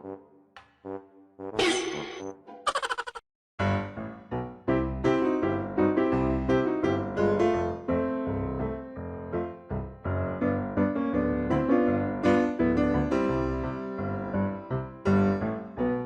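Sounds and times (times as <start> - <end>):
piano music: 3.6 - 16.0.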